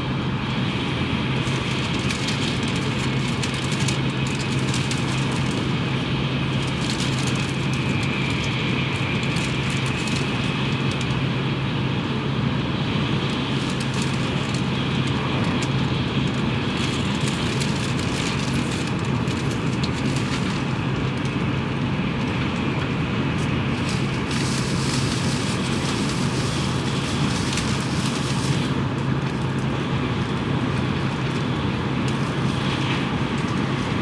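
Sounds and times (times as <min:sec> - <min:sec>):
constant low hum: 0:00.0 - 0:34.0
train cabin rumble and rushing: 0:00.0 - 0:34.0.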